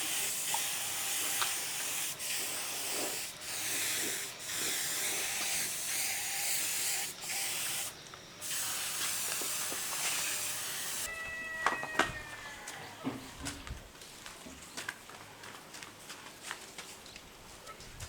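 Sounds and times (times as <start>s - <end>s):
spray gun hissing: 0.0s - 11.1s.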